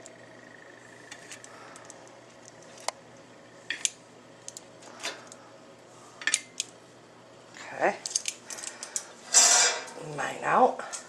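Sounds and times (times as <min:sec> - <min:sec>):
utensils clinking on plates: 0:09.3 - 0:10.0.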